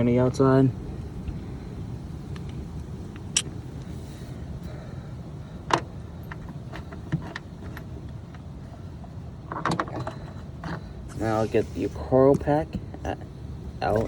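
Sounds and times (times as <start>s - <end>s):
low background rumble: 0.0s - 14.0s
sharp clicks and knocks: 5.7s - 8.5s, 9.5s - 10.9s.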